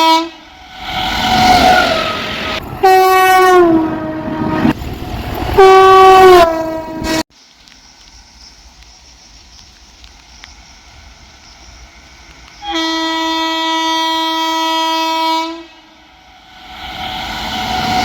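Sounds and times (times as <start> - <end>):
locomotive horn blast: 0.0 - 0.7, 1.3 - 4.8, 5.5 - 7.2, 12.6 - 16.4
faint hiss of rain: 7.3 - 14.6.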